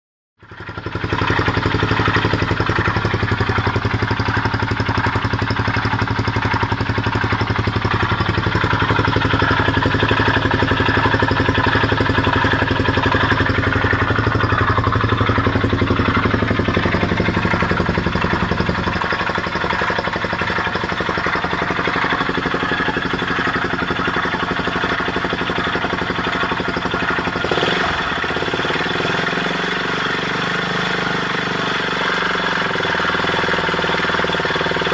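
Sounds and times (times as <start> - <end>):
motorcycle engine running: 0.4 - 34.9.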